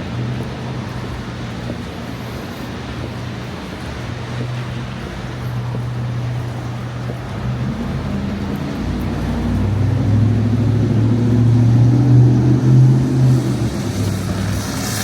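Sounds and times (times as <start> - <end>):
vehicle engine passing by: 7.4 - 15.0.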